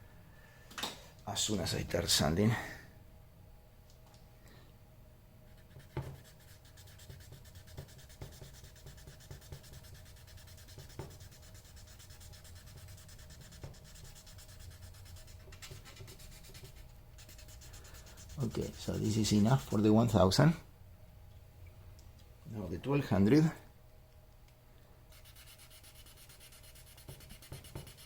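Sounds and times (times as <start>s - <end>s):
sandpaper rubbing by hand: 5.6s - 19.8s, 25.2s - 28.0s.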